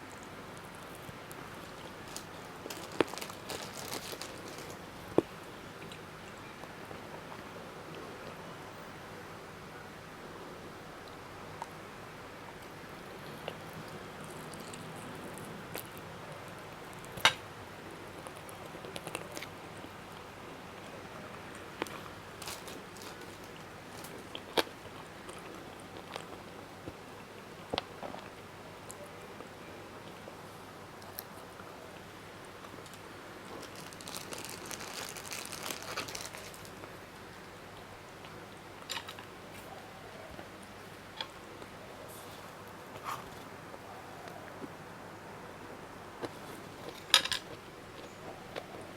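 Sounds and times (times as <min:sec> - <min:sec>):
crisp crunching while eating: 0:00.1 - 0:06.0, 0:21.6 - 0:26.5, 0:32.6 - 0:36.9
quiet chewing: 0:12.6 - 0:17.4, 0:18.1 - 0:30.3, 0:46.2 - 0:48.9.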